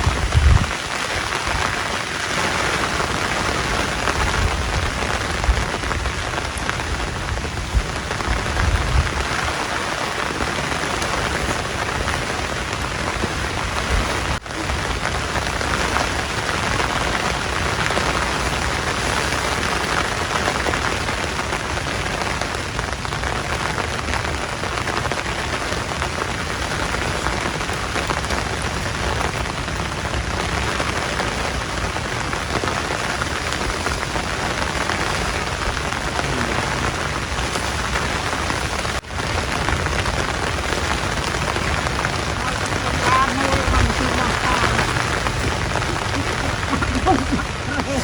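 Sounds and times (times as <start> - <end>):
heavy rain: 0.0 - 48.0.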